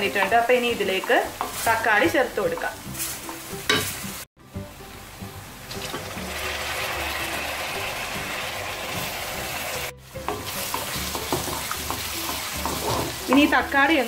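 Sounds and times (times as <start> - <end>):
onions frying in oil: 0.0 - 14.0
tomato sizzling in hot oil: 0.0 - 14.0
wooden spoon scraping: 10.4 - 13.5.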